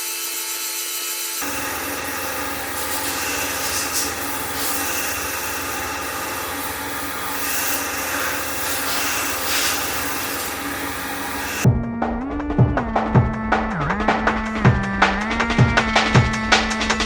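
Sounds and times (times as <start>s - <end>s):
rushing hissing mechanical noise: 1.3s - 11.7s.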